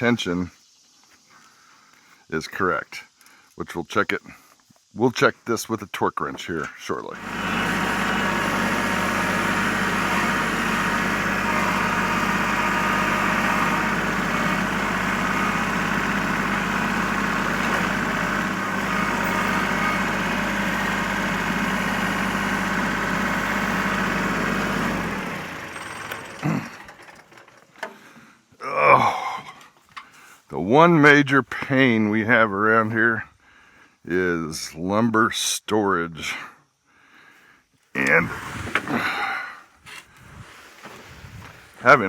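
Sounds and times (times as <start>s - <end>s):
sawmill engine running: 7.0s - 28.0s.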